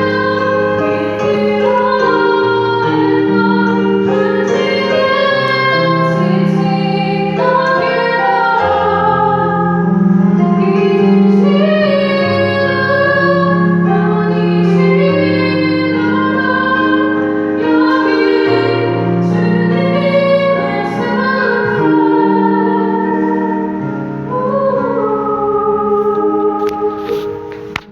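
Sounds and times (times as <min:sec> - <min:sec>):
woman singing: 0:00.0 - 0:27.6
instrumental accompaniment: 0:00.0 - 0:27.9.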